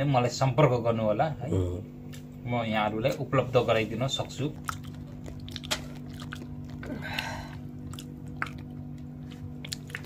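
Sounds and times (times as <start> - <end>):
low steady hum: 0.0 - 10.0
person chewing meat: 4.2 - 10.0.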